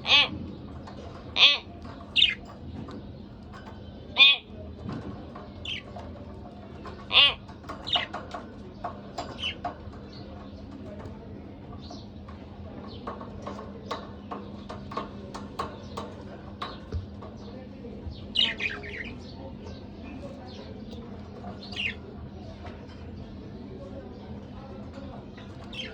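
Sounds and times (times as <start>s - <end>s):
budgerigars chirping: 1.4s - 2.5s.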